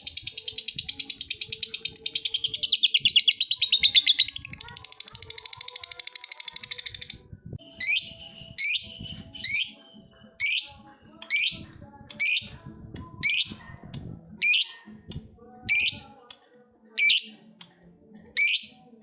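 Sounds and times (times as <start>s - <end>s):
lovebird chattering trill: 0.0s - 9.8s, 10.4s - 12.6s, 13.2s - 13.6s, 14.4s - 14.8s, 15.7s - 16.1s, 17.0s - 17.4s, 18.4s - 18.8s
sharp high bird calls: 5.0s - 11.6s, 14.4s - 14.8s, 15.7s - 16.0s, 17.0s - 17.4s, 18.4s - 18.8s.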